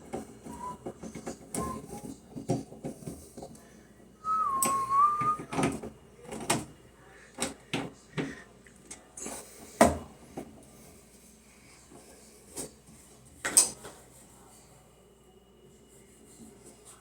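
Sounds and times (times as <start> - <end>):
short whistled note: 1.6 - 2.0, 4.2 - 5.5
clicks and knocks of handling: 4.6 - 6.8.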